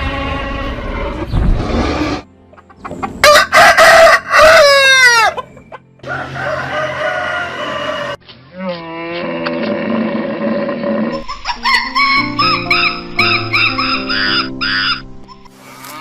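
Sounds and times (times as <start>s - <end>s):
rooster crowing: 3.2s - 5.4s, 6.0s - 8.2s.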